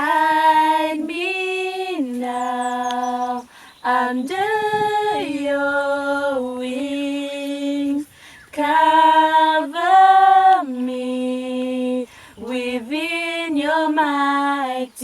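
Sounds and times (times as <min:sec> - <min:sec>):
woman singing unaccompanied: 0:00.0 - 0:15.0
woman breathing: 0:03.5 - 0:03.8, 0:08.1 - 0:08.5, 0:12.1 - 0:12.4.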